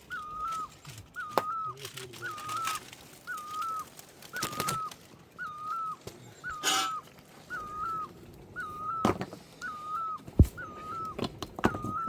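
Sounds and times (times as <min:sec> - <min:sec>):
bird whistling a short note: 0:04.4 - 0:12.0.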